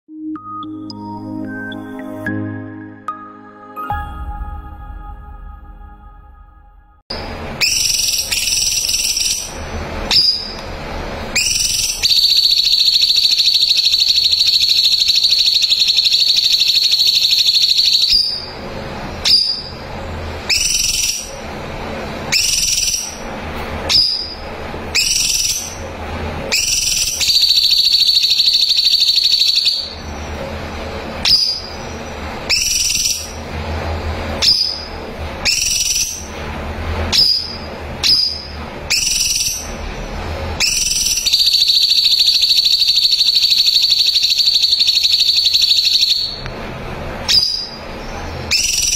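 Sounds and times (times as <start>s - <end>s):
songbird trilling: 11.4s - 18.5s, 26.5s - 30.0s.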